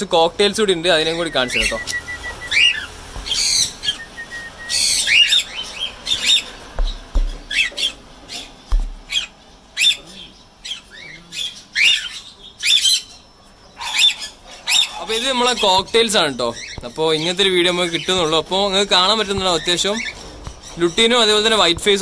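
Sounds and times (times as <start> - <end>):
parrots squawking and chirping: 0.9 - 22.0
low thumps: 6.6 - 7.6, 8.6 - 9.2, 18.1 - 22.0.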